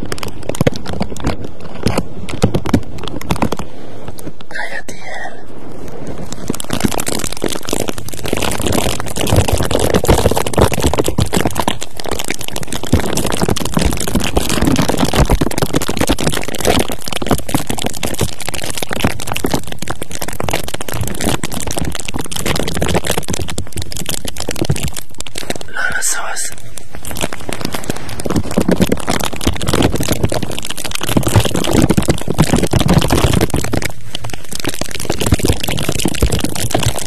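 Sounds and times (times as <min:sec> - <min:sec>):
scratching on microphone: 0:04.5 - 0:37.0.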